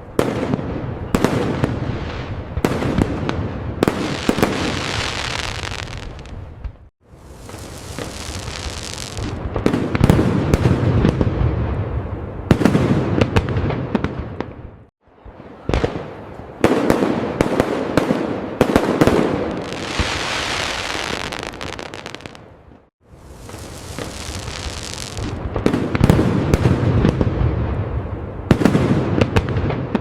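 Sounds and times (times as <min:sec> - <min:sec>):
fireworks bangs with rumbling tails: 0:00.0 - 0:30.0
fireworks crackling burst: 0:03.9 - 0:11.7, 0:19.5 - 0:22.4, 0:23.0 - 0:27.3.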